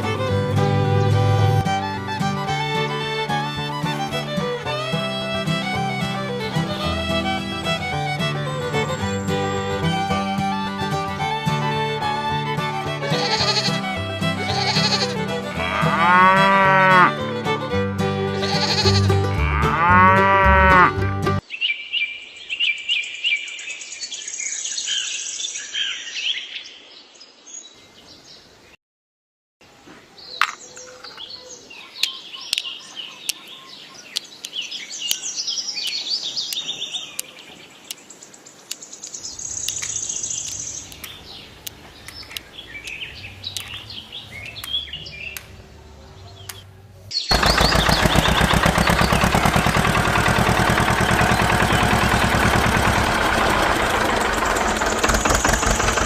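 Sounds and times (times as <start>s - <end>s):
small birds chirping: 30.0s - 56.0s
sharp clicks: 39.6s - 43.8s, 47.3s - 56.0s
loud dense noise: 47.3s - 56.0s.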